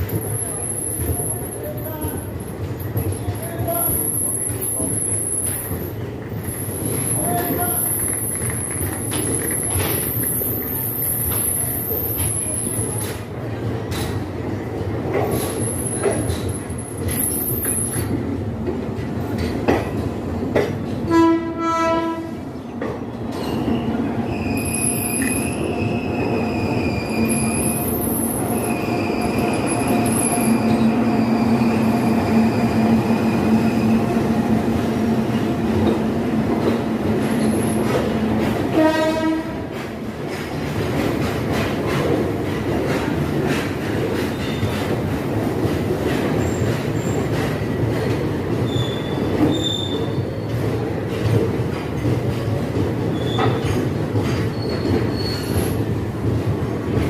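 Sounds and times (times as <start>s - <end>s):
train horn blast: 21.1s - 22.4s, 38.7s - 39.7s
train wheel squeal: 23.3s - 34.0s, 44.3s - 44.8s, 48.6s - 50.7s, 53.1s - 55.9s.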